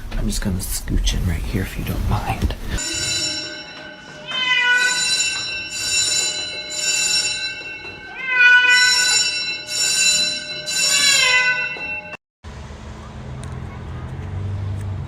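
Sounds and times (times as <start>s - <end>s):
cat meowing loudly: 4.3s - 5.2s, 8.1s - 9.1s, 11.0s - 11.7s.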